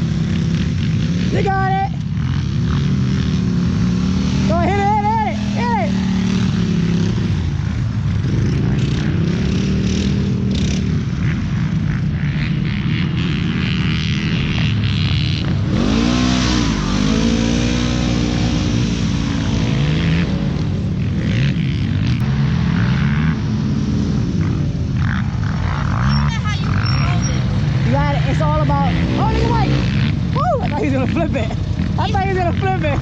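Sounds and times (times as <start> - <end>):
atv engine revving: 0.0 - 33.0.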